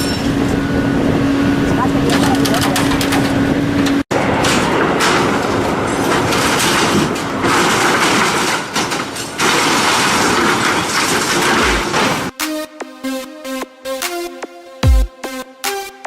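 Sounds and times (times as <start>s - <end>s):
scrap metal being crushed: 4.1s - 12.3s.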